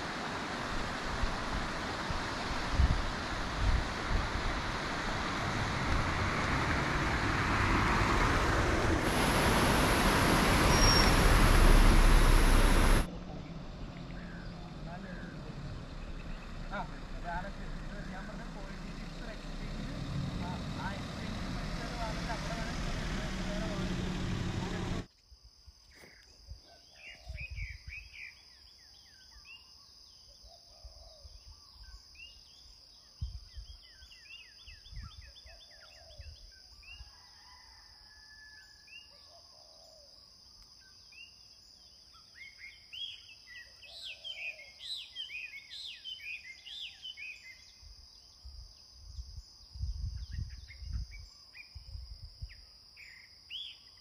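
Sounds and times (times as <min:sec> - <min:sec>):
high insect drone: 0:00.0 - 0:26.6
low rumbles: 0:00.4 - 0:25.1
birds chirping: 0:09.1 - 0:25.1.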